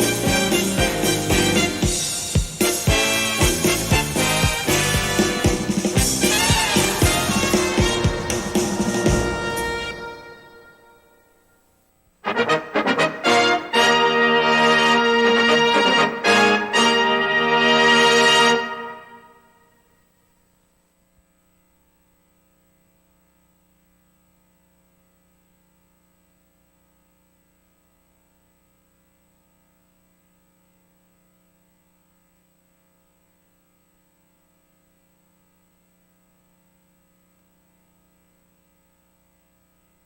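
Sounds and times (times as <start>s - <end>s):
thin high whine: 0.0s - 12.4s
faint electrical hum: 0.0s - 40.0s
tape hiss: 0.0s - 40.0s.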